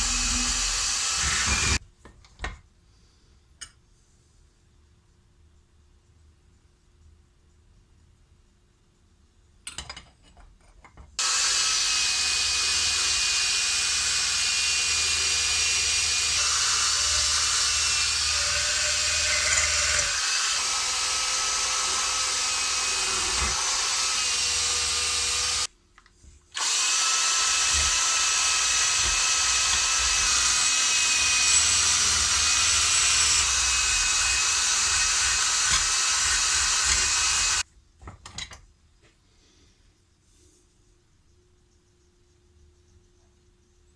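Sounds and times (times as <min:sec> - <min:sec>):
power tool whining: 0:00.0 - 0:01.8, 0:11.2 - 0:25.7, 0:26.6 - 0:37.6.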